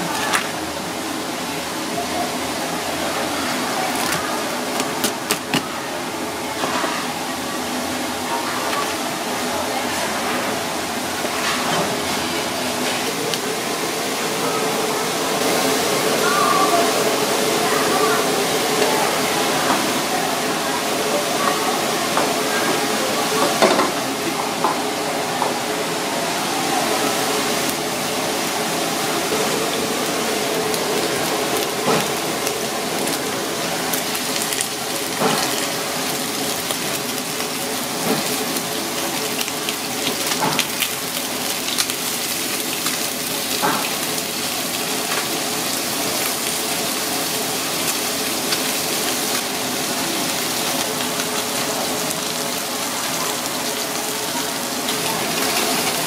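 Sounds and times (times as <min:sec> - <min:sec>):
crab meat sizzling in oil: 0:15.4 - 0:56.0.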